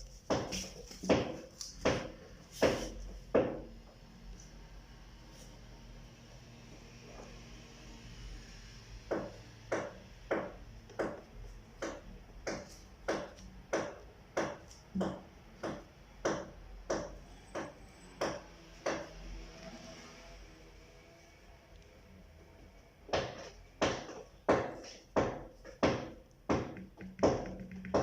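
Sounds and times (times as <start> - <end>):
hand tool striking material: 0.2 - 3.6.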